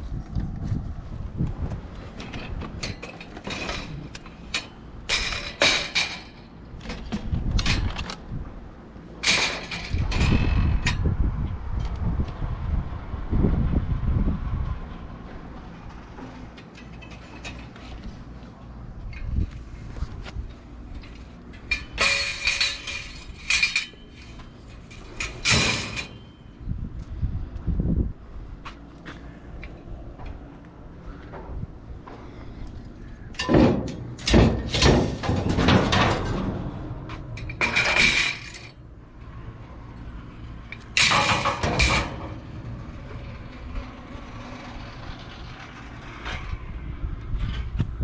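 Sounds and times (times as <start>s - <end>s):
hard objects clanking and rattling: 2.1s - 8.2s, 9.2s - 11.0s, 16.2s - 18.4s, 20.2s - 26.5s, 32.8s - 38.8s, 40.0s - 46.4s
knocks and clatters in a dumpster: 2.1s - 8.2s, 9.2s - 11.0s, 20.9s - 26.4s, 33.4s - 38.8s, 40.8s - 44.0s.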